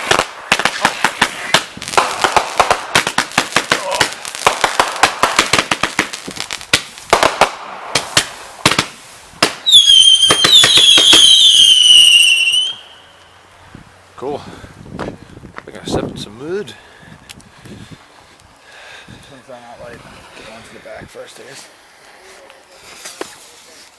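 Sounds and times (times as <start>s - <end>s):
fireworks cracks and pops: 0.0s - 12.8s, 22.4s - 23.9s
shrill firework whistles: 9.5s - 13.3s.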